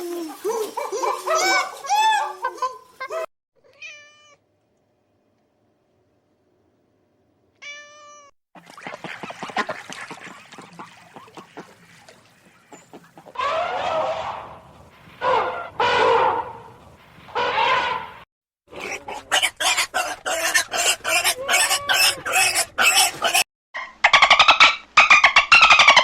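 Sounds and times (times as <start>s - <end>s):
rustling: 0.0s - 3.1s, 14.4s - 18.2s
high arching animal cries: 18.7s - 23.4s.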